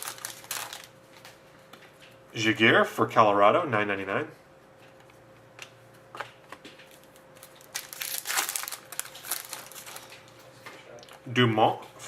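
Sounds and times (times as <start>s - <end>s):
card packaging crinkling: 0.0s - 1.4s, 6.2s - 10.5s
faint steady hum: 0.0s - 12.0s.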